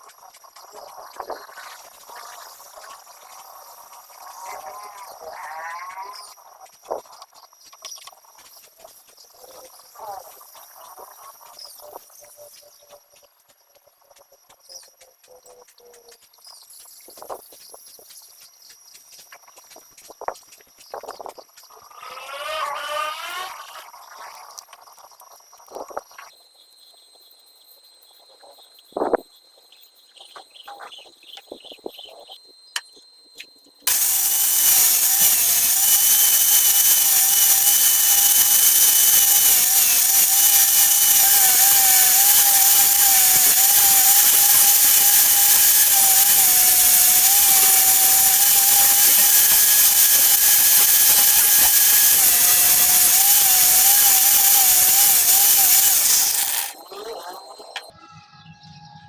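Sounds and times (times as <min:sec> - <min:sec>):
high-speed electric hand tool whine: 0:00.8 - 0:06.4, 0:21.8 - 0:23.9, 0:33.9 - 0:57.9.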